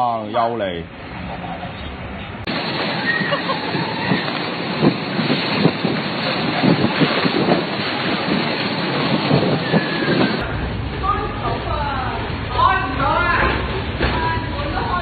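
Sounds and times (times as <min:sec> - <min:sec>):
wind gusting on microphone: 0:01.9 - 0:15.0.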